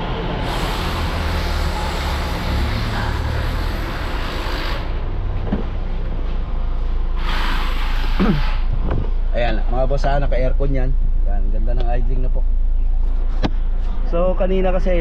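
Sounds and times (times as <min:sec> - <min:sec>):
car engine idling: 0:00.0 - 0:04.1
rushing hiss: 0:07.2 - 0:08.7.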